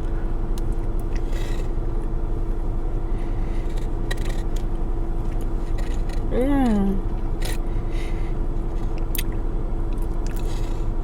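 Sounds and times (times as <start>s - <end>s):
steady background hum: 0.0s - 11.0s
person chewing cake: 3.6s - 7.6s, 8.6s - 11.0s.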